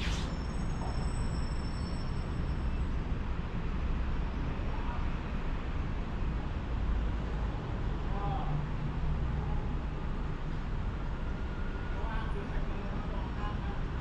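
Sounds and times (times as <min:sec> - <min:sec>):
faint high whine: 0:00.0 - 0:03.6.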